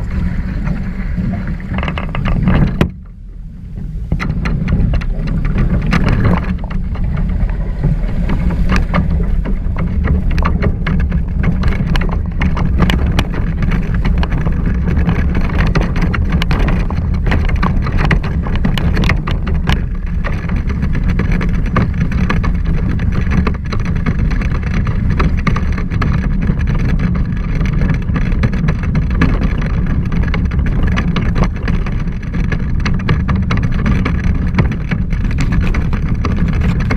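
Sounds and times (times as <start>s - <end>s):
water rushing past hull: 0.0s - 36.9s
wind buffeting microphone: 0.0s - 36.9s.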